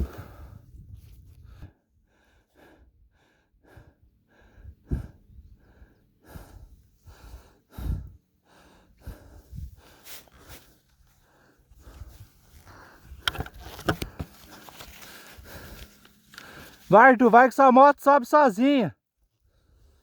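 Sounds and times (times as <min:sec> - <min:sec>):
person panting: 0:00.0 - 0:00.6, 0:01.4 - 0:13.4, 0:14.1 - 0:16.9.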